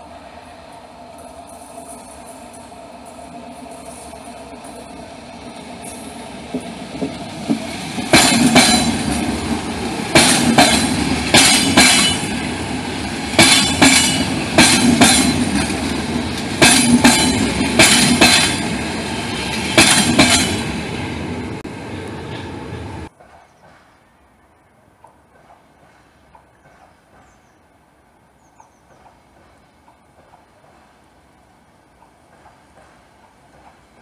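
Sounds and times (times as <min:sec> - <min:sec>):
train rumble: 0:00.0 - 0:34.0
train wheels knocking on rails: 0:04.6 - 0:20.8, 0:32.0 - 0:34.0.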